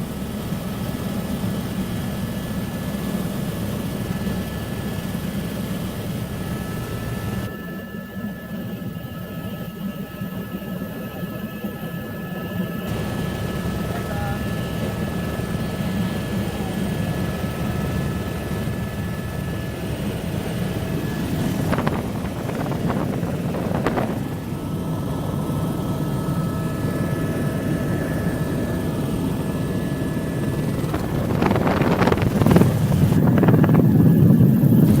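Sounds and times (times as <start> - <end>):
helicopter drone inside cabin: 0.0 - 35.0.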